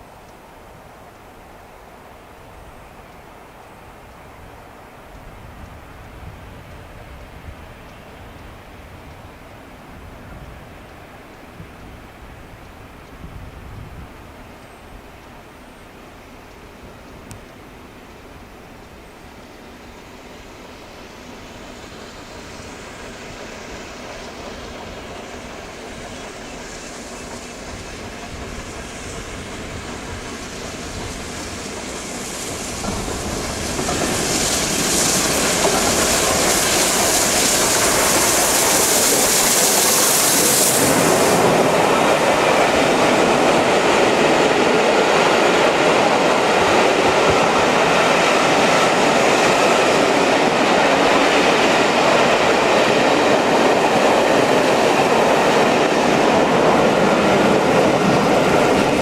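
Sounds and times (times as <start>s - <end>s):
high steam hiss: 0.0s - 59.0s
steam locomotive passing: 0.0s - 59.0s
coaches clattering on rails: 24.0s - 59.0s.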